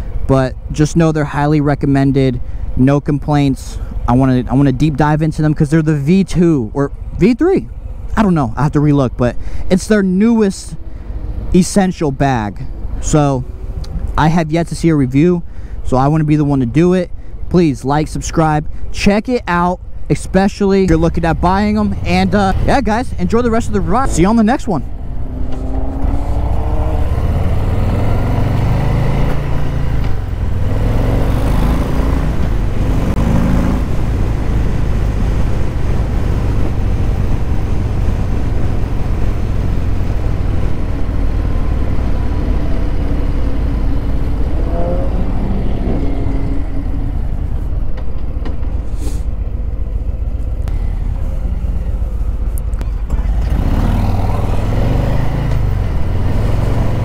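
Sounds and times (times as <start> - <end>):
motorcycle engine accelerating: 20.9 - 57.0.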